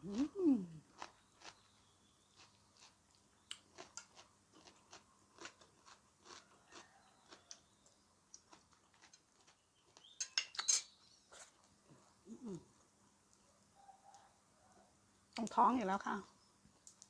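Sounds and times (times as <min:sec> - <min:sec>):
person chewing crunchy food: 0:00.1 - 0:10.2.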